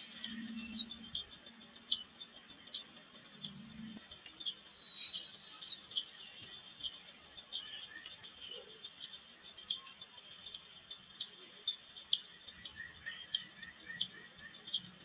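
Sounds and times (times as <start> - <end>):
long high bird whistles: 0.0 - 1.0, 4.7 - 5.8, 8.3 - 9.7.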